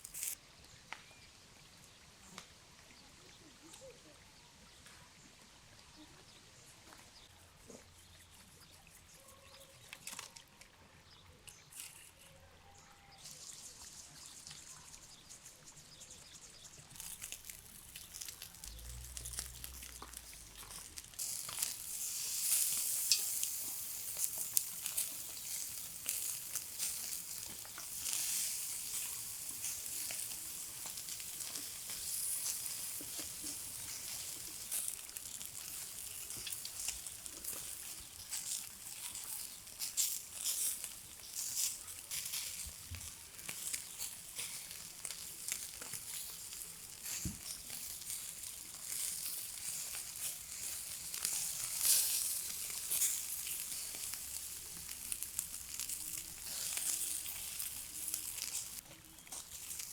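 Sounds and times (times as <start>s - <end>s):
food sizzling over campfire: 0.0s - 0.4s, 13.1s - 59.9s
fire crackles: 0.0s - 1.1s, 13.2s - 59.9s.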